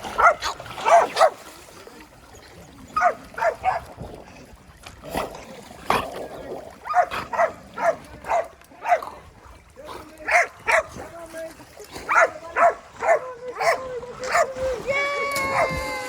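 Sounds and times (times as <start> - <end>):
dog barking in high yaps: 0.2 - 1.4, 3.0 - 3.8.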